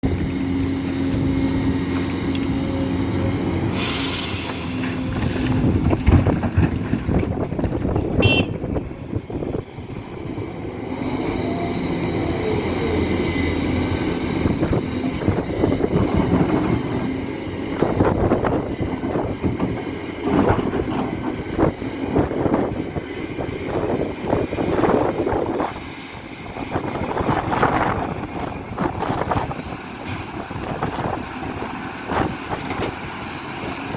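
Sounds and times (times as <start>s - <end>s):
excavator diesel engine under load: 0.0s - 33.9s
short hiss: 3.7s - 5.0s
bucket knocking and scraping rocks: 4.5s - 8.7s.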